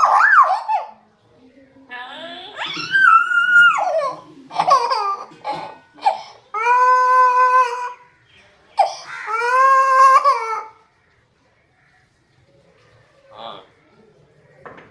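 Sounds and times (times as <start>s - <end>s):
parrot calling: 2.5s - 5.2s, 8.8s - 10.8s.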